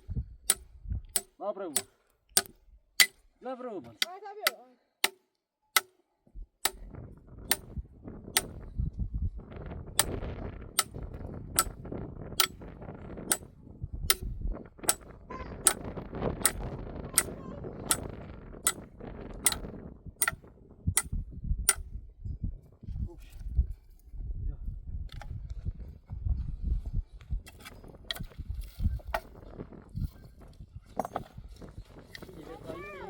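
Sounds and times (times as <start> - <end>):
low rumbling rustling noise: 22.2 - 32.6.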